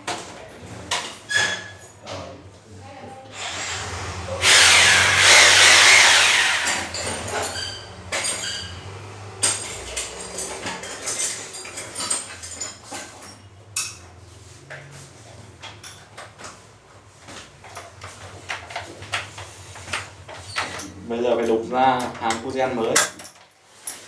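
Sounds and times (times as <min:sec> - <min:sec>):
power tool running: 0:03.3 - 0:10.9.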